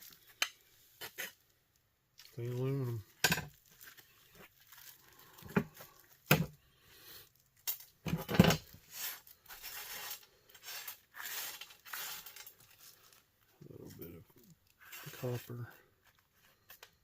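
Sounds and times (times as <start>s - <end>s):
rustling and scraping of metal: 7.6s - 17.0s
metal parts clinking: 10.0s - 12.8s.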